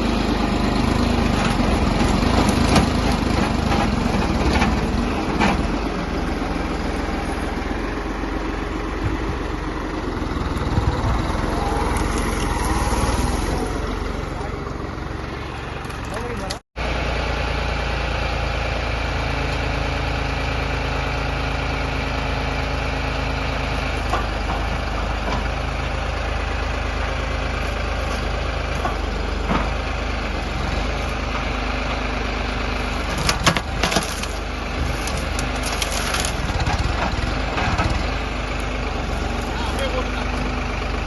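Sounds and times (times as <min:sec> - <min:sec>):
heavy machine engine running: 0:00.0 - 0:41.0
wood cracking and splintering: 0:33.0 - 0:38.0.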